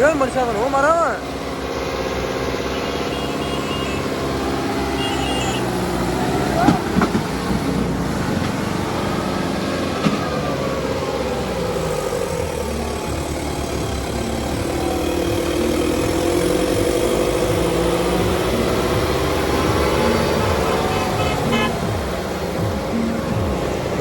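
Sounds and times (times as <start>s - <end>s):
tractor diesel engine revving: 0.0s - 24.0s.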